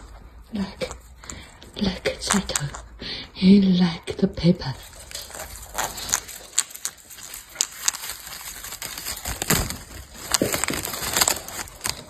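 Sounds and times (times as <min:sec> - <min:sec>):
parrot tearing paper: 0:04.8 - 0:12.0.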